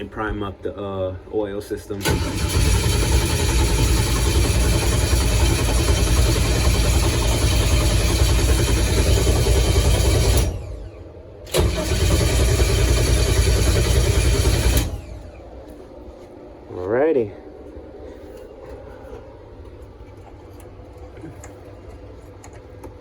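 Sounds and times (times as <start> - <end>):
starter cranking car engine: 2.0 - 15.4.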